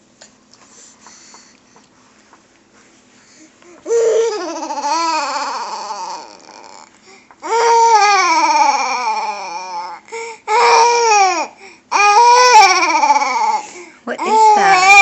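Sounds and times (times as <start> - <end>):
baby making wavering cries: 3.9 - 13.6, 14.2 - 15.0.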